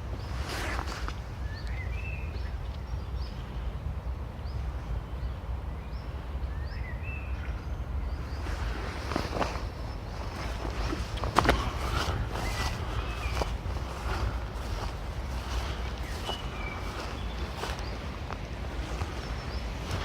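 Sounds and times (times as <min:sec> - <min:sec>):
rustling in leaf litter: 0:00.0 - 0:01.6, 0:08.3 - 0:20.0
small birds chirping: 0:00.0 - 0:20.0.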